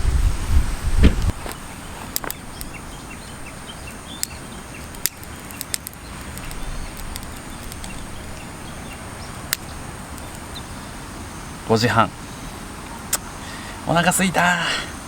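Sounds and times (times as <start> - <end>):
background hiss: 0.0 - 15.0
sharp clicks: 1.2 - 2.8, 4.1 - 8.5.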